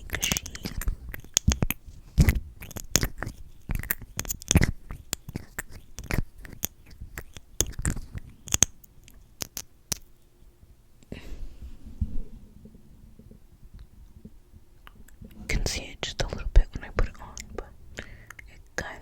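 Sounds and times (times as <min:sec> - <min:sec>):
wet lip smacks and clicks: 0:00.0 - 0:10.3, 0:18.2 - 0:18.5.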